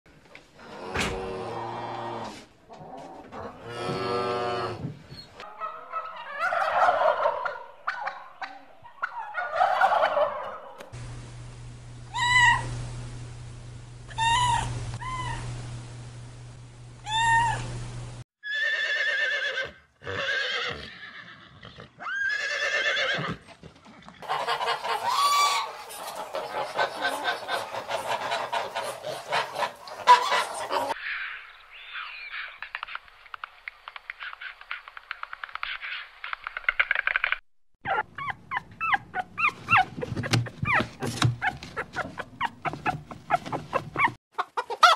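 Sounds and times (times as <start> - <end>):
flock of fowl calling: 5.4 - 10.9, 24.2 - 32.8.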